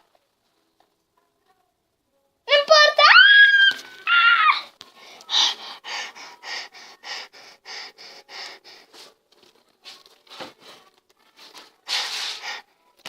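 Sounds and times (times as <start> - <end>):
girl puffing breaths: 4.9 - 9.1.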